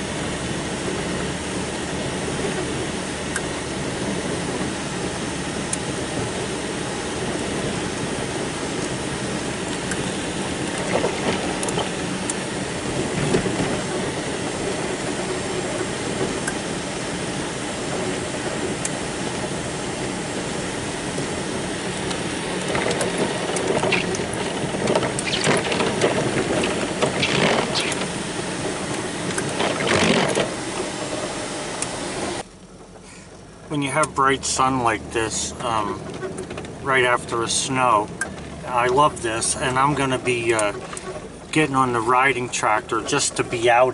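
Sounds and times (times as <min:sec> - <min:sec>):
riding tractor engine drone: 0:00.0 - 0:43.9
rattling bursts: 0:21.9 - 0:31.5.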